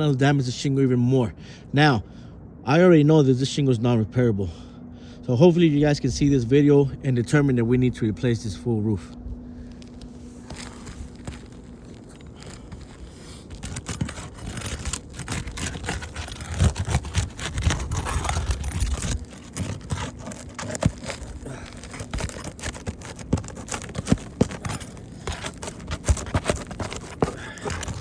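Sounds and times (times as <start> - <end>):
roof shingles scraping and crackling: 9.6 - 28.0.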